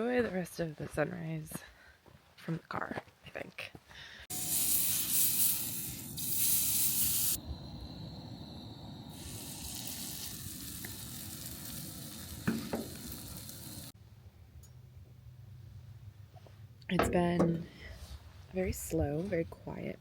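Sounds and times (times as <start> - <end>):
batter sizzling in frying pan: 4.3 - 7.4, 8.4 - 14.0.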